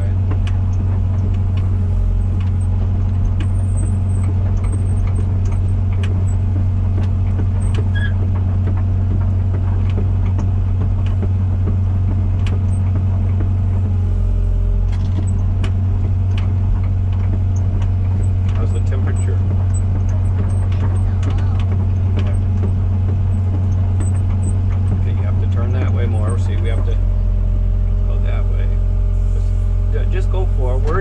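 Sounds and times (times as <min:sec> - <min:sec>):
excavator diesel engine running: 0:00.0 - 0:31.0
machine clicks and clanks: 0:02.4 - 0:13.6, 0:14.9 - 0:27.0.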